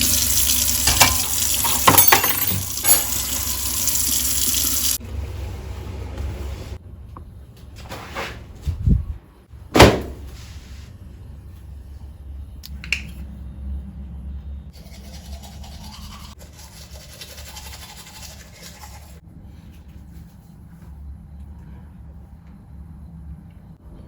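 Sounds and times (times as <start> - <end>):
low steady hum: 8.7 - 16.4.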